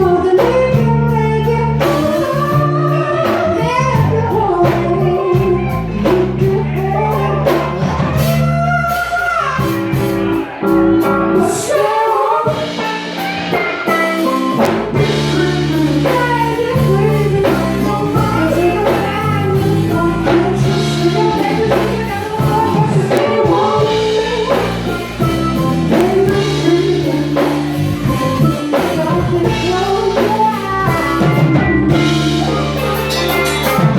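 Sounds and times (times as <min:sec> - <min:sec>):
bass line: 0:00.0 - 0:11.8, 0:12.5 - 0:33.9
live rock band playing: 0:00.0 - 0:33.9
person singing: 0:00.0 - 0:33.9
drumbeat: 0:12.5 - 0:33.9.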